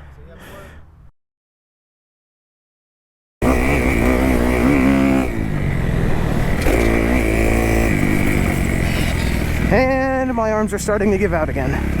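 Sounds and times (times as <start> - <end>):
motorcycle engine revving: 3.4 - 12.0.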